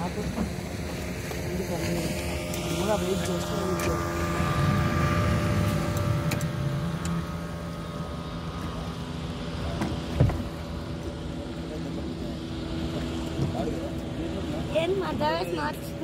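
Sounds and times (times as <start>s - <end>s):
boat engine droning: 0.0s - 16.0s
short thump: 9.8s - 10.5s.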